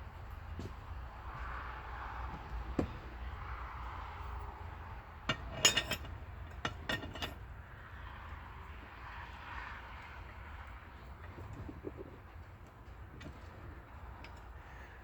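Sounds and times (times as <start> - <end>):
metal tools clinking on metal: 5.3 - 7.5.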